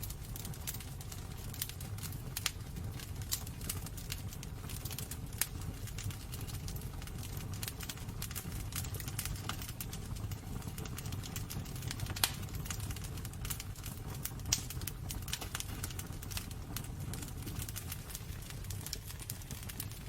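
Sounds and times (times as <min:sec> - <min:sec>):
wood fire crackling and popping: 0:00.0 - 0:20.0.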